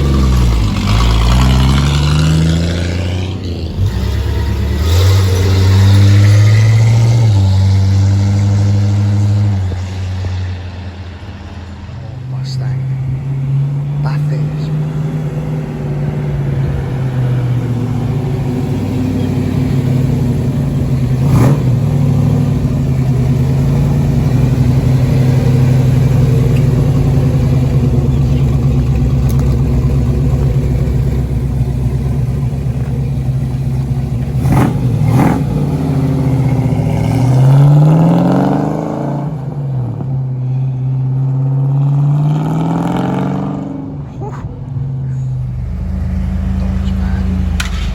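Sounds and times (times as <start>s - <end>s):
car engine revving: 0.0s - 47.9s
car engine rumbling: 0.0s - 47.9s
sharp cracks: 47.3s - 47.9s.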